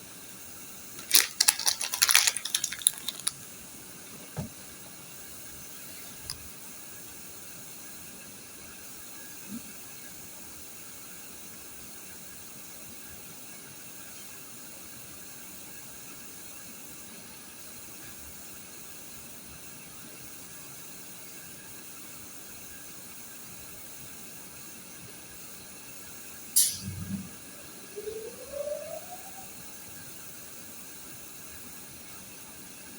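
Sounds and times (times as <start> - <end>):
sharp click: 26.6 - 27.1.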